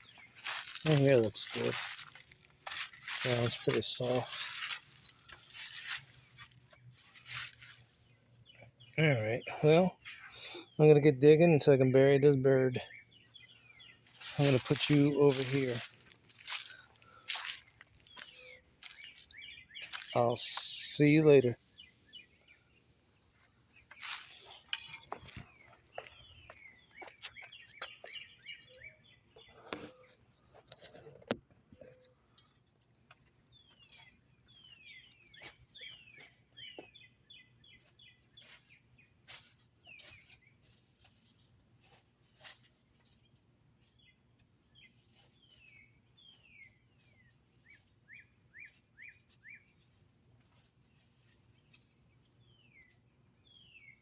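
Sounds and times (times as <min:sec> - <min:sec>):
digging in soft ground: 0:00.0 - 0:08.2, 0:13.9 - 0:20.6, 0:23.4 - 0:31.4, 0:37.7 - 0:44.2
songbird chirping: 0:00.0 - 0:54.0.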